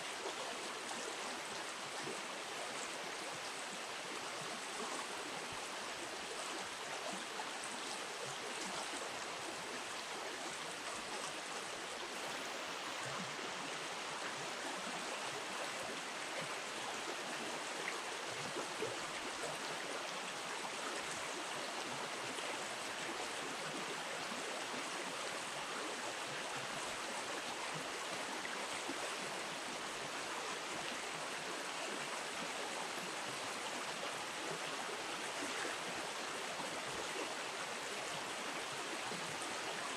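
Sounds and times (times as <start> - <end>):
shallow river water running: 0.0 - 39.9.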